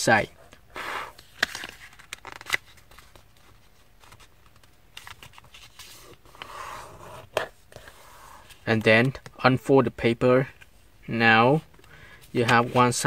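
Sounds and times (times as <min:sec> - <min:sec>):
paper rustling and creasing: 0:01.2 - 0:08.6.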